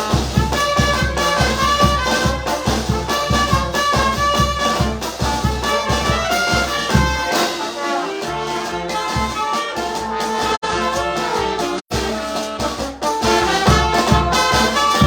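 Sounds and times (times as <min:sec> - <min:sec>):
brass band music: 0:00.0 - 0:15.0
bass drum beat: 0:13.3 - 0:15.0.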